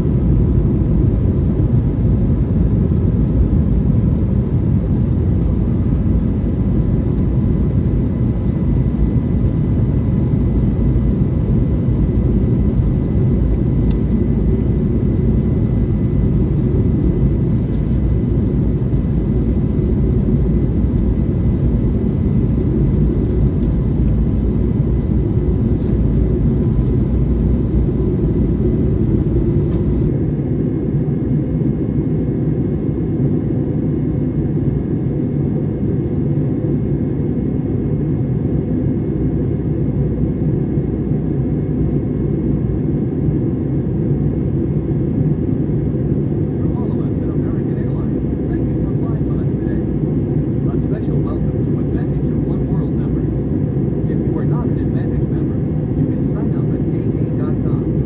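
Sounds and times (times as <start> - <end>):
jet engine and airflow roar: 0.0 - 58.0
faint steady whining tones: 5.2 - 31.0.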